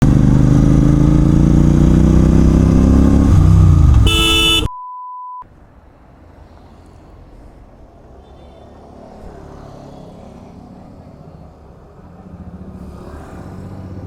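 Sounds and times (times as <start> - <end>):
motorcycle engine running: 0.0 - 4.6
short horn-like tone: 4.0 - 5.4
steady beep: 4.1 - 5.4.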